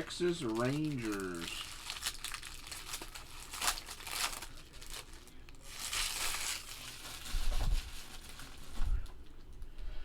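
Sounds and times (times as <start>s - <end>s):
plastic packaging crinkling and tearing: 0.0s - 9.1s.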